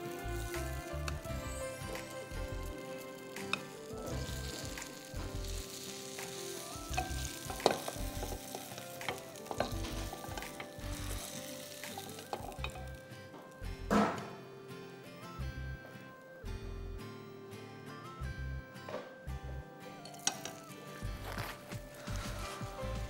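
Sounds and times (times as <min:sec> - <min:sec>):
food sizzling in hot oil: 0:00.0 - 0:13.6, 0:20.1 - 0:23.0
soft background music: 0:00.0 - 0:23.0.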